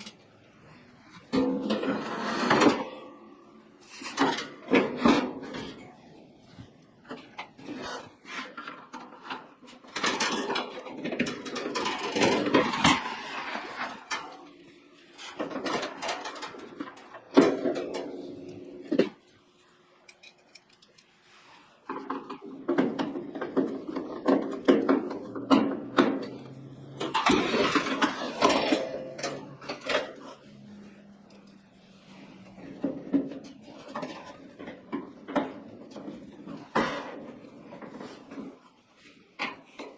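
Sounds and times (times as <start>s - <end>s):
metal parts clicking and clattering: 7.0s - 19.4s, 20.0s - 38.7s.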